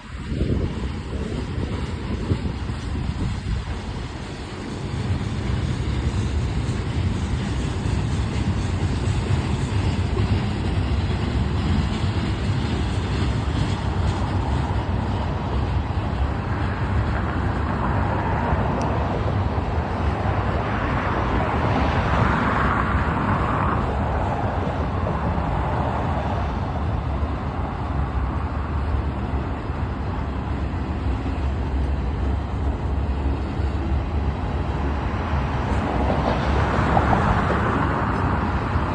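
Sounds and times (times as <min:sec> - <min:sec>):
freight train wheels rumbling on rail: 0:00.0 - 0:38.9.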